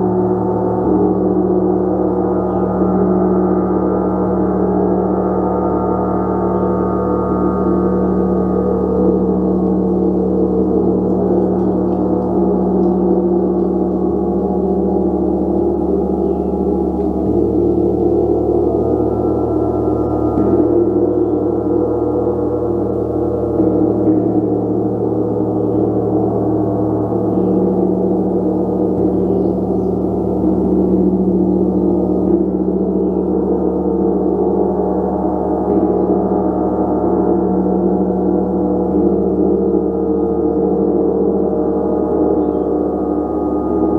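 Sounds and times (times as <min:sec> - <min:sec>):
gong wash of overlapping tones: 0:00.0 - 0:43.9.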